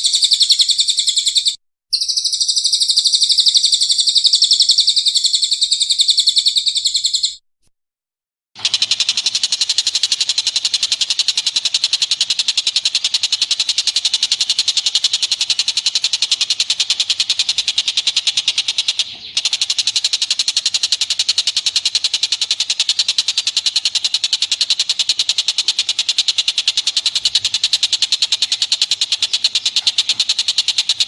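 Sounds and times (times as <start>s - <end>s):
animal giving rapid high chips: 8.6s - 31.0s.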